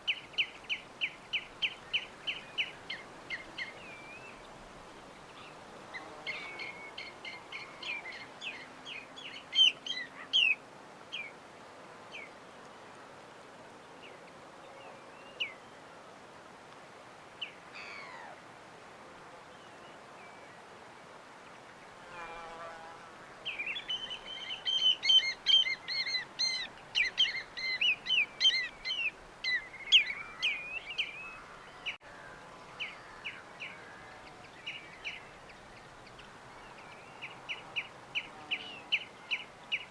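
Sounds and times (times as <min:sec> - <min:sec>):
faint steady hiss: 0:00.0 - 0:39.9
birds chirping: 0:23.4 - 0:32.0.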